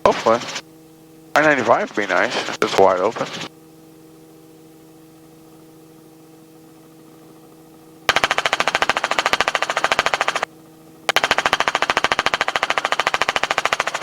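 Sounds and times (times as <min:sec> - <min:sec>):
helicopter rotor chop: 0:00.0 - 0:00.7, 0:01.3 - 0:03.5, 0:08.1 - 0:14.0
steady cockpit hum: 0:00.0 - 0:14.0.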